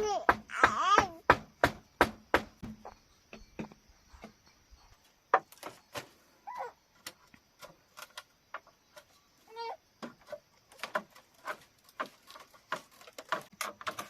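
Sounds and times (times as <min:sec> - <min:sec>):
sharp knocks and clicks: 0:00.1 - 0:04.4, 0:10.0 - 0:14.0.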